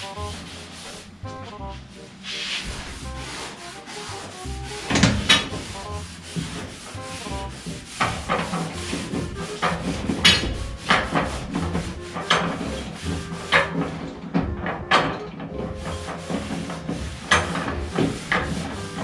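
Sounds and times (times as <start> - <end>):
metal parts knocking and scraping: 4.8 - 7.0, 7.6 - 19.0.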